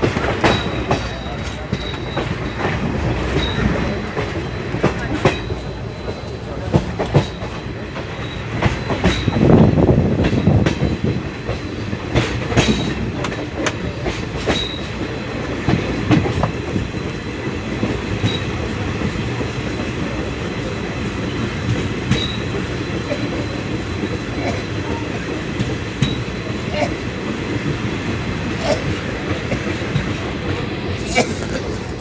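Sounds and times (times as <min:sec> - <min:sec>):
train rumbling on track: 0:00.0 - 0:32.0
wheels clicking over rail joints: 0:00.0 - 0:32.0.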